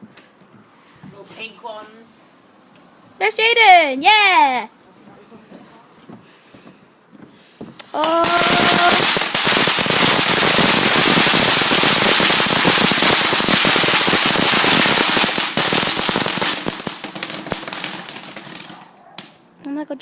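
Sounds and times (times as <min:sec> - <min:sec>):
crackling firework pops: 0:07.7 - 0:19.4.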